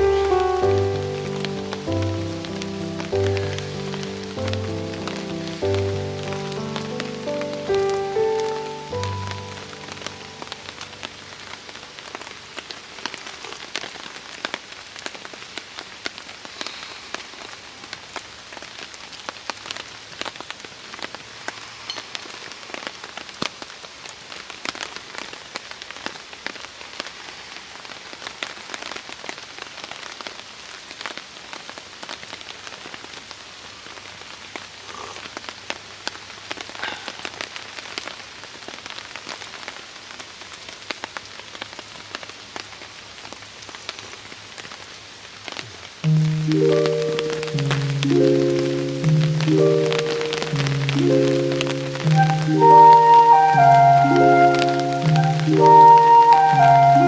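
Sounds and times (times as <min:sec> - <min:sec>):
raindrop hits: 0:00.0 - 0:14.0, 0:46.0 - 0:57.0
steady rain falling: 0:00.0 - 0:57.0.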